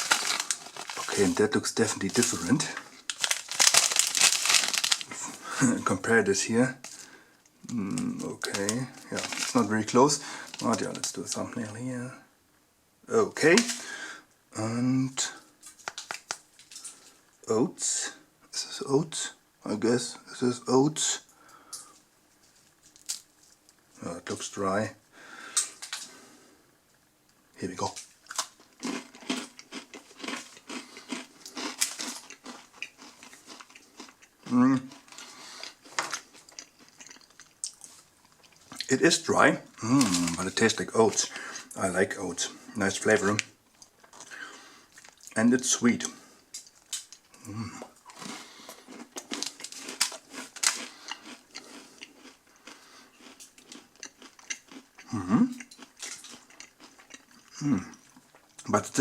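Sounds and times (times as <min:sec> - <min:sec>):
person chewing crunchy granola bar: 0:00.0 - 0:05.8, 0:06.8 - 0:11.4, 0:28.2 - 0:38.9, 0:39.7 - 0:41.7, 0:46.5 - 0:58.7.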